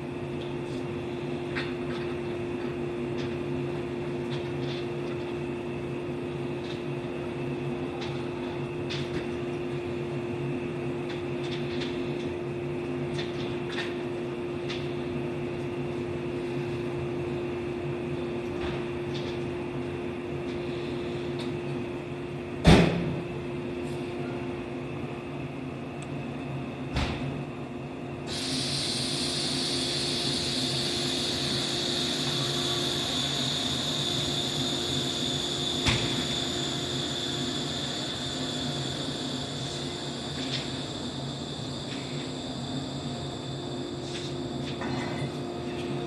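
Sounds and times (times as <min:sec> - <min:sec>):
electric train humming: 0:28.2 - 0:46.0
compressed air hiss: 0:28.3 - 0:41.1.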